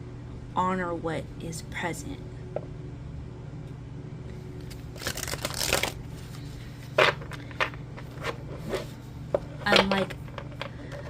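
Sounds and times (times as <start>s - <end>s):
cards being shuffled: 4.6s - 8.9s.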